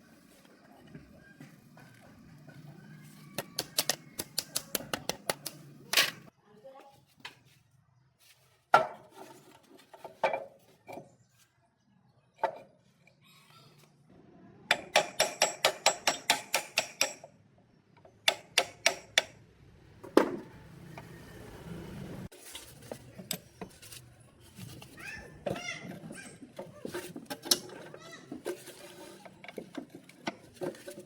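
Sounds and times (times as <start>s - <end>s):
hammer striking metal: 14.7s - 17.2s.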